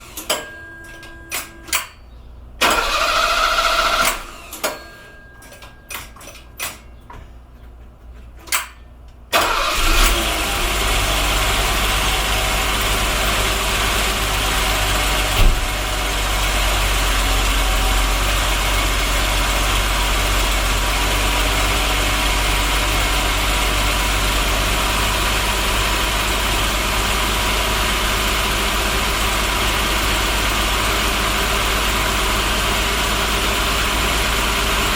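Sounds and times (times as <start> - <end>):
engine cranking: 2.6 - 6.8, 9.3 - 34.9
car engine idling: 9.6 - 34.9.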